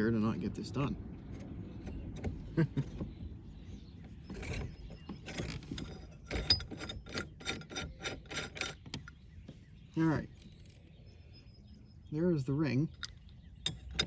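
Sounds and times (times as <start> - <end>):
hand tools clicking on metal: 4.3 - 9.2, 13.0 - 14.0.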